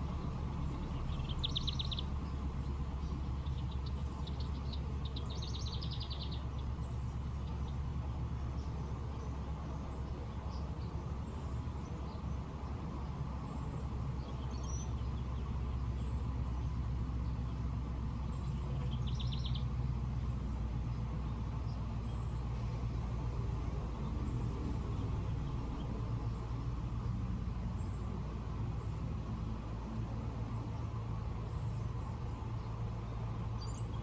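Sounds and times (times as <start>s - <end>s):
low mechanical hum: 0.0s - 34.0s
bird chirps: 0.1s - 7.8s, 18.3s - 19.8s.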